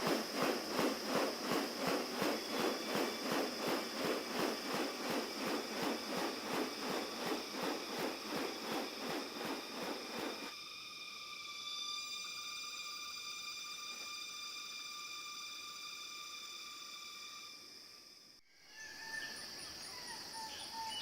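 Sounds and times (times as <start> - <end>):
steady high whine: 0.0 - 13.8.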